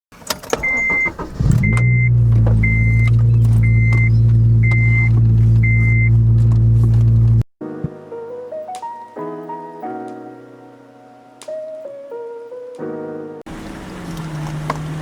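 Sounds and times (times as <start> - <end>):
car engine starting and idling: 0.1 - 7.4, 13.5 - 15.0
high warning chime beeps: 0.6 - 6.1.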